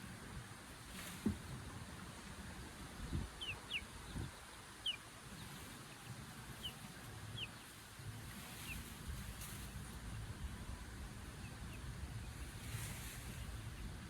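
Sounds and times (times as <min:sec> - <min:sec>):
low outdoor rumble: 0:00.0 - 0:14.0
bird chirping: 0:03.0 - 0:08.8.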